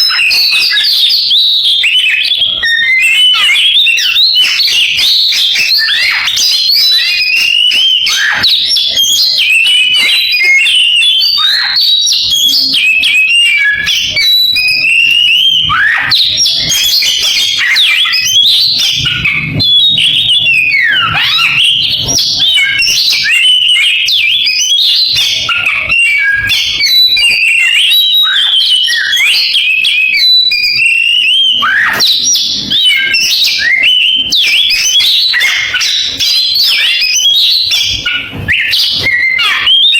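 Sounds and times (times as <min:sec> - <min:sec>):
songbird singing varied song: 0:00.0 - 0:39.9.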